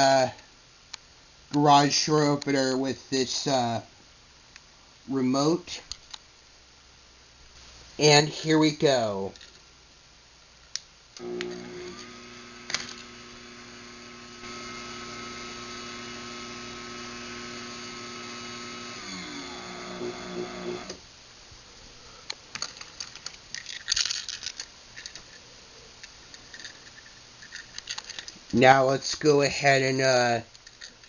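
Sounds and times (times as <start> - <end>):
garage door opener motor running: 11.2 - 21.0
clicks and rattles: 22.3 - 28.6, 30.5 - 31.0.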